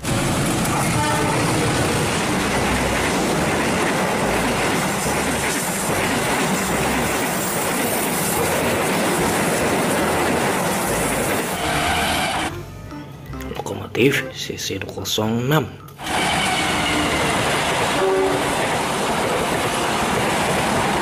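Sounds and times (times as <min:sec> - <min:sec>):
passing train rush: 0:00.0 - 0:12.5, 0:15.9 - 0:21.0
wheels clacking over rail joints: 0:00.0 - 0:12.5, 0:16.0 - 0:21.0.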